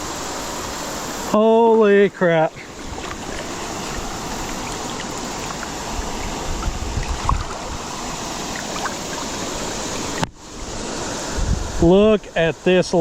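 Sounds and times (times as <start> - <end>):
creek rushing: 0.0 - 11.8
low bumps: 2.7 - 10.3.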